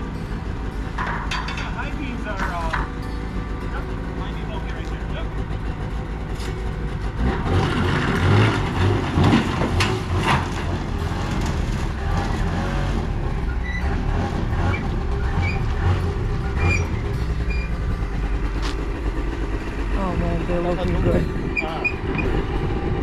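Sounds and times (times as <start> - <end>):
vehicle engine running: 0.0 - 23.0
clattering knocks: 1.0 - 3.0.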